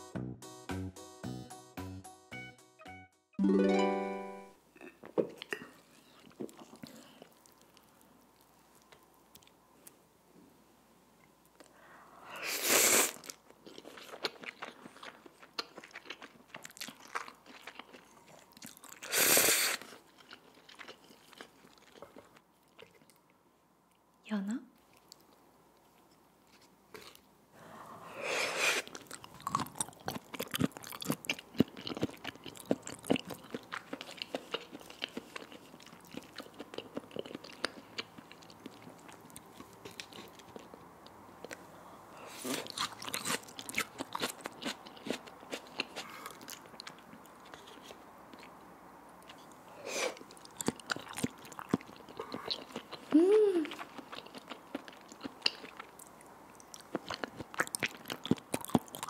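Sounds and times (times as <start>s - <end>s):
wet chewing and mouth smacks: 13.1s - 24.0s, 28.8s - 41.7s, 50.2s - 59.0s
person humming: 53.1s - 53.8s.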